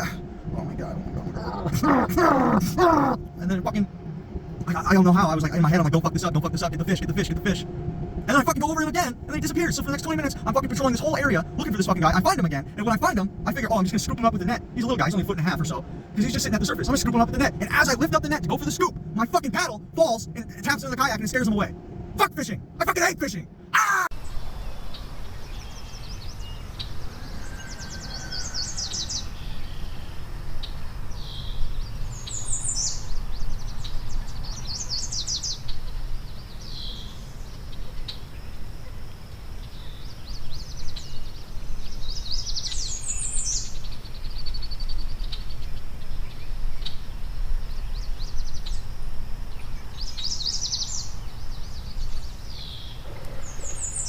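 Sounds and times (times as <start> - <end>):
steady low rumble: 0.0 - 27.2
songbirds trilling: 0.0 - 54.0.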